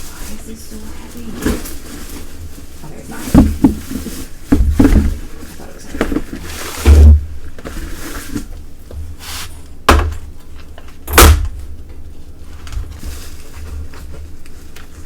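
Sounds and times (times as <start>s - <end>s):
packaging rustling: 0.0s - 8.5s
loud thuds against box: 9.9s - 10.2s, 11.1s - 11.6s.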